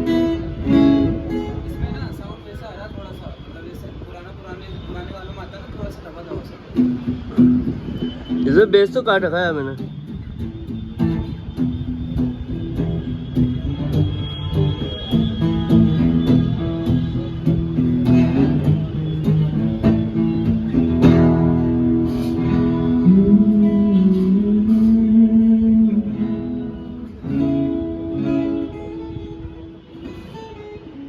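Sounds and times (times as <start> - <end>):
amplified guitar playing: 0.0 - 2.2, 6.7 - 31.0.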